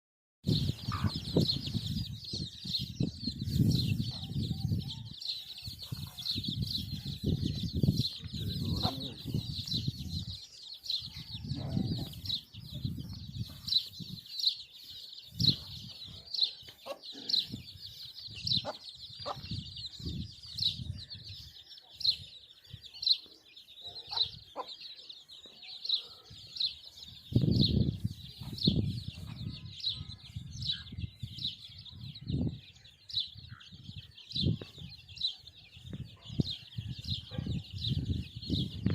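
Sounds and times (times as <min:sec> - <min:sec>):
high-pitched chirping: 0:00.5 - 0:17.0.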